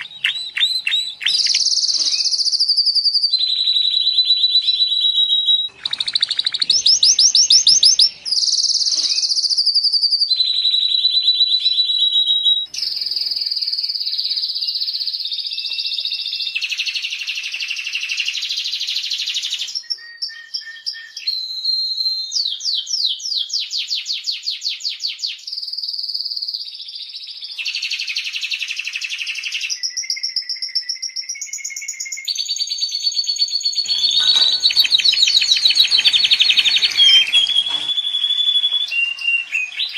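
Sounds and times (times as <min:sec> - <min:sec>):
canary singing rapid trills: 0:00.0 - 0:21.4, 0:33.3 - 0:39.9.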